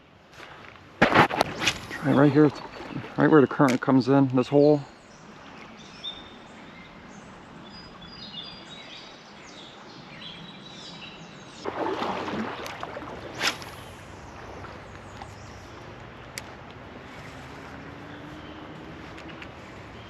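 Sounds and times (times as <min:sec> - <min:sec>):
sharp snap: 0:01.0 - 0:02.0, 0:13.4 - 0:13.8
creek water rushing: 0:01.2 - 0:10.1, 0:11.6 - 0:20.0
small birds chirping: 0:01.9 - 0:11.7, 0:13.4 - 0:20.0.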